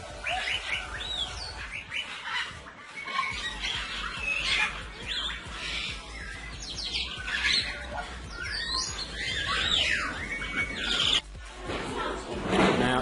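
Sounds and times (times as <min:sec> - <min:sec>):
parrots calling: 0:00.0 - 0:11.2.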